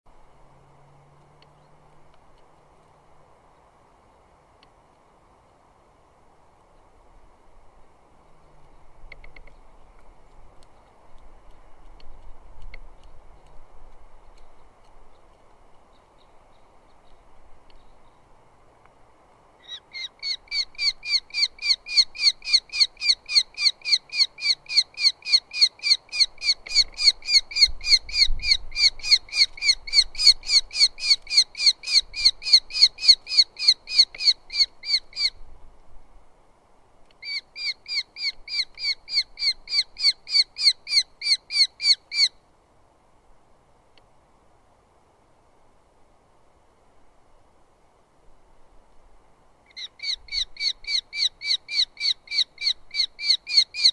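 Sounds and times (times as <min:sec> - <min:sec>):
falcon calling repeated notes: 0:19.6 - 0:35.4, 0:37.2 - 0:42.4, 0:49.7 - 0:53.9.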